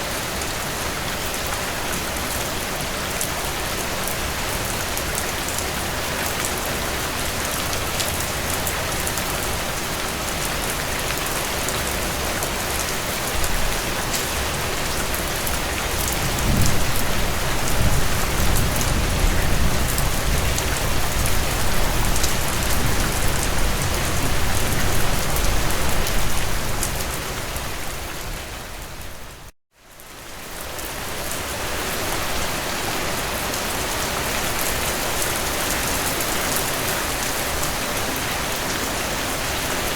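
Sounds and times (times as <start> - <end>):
heavy rain on a tin roof: 0.0 - 39.9
low rumble of thunder: 16.1 - 26.9.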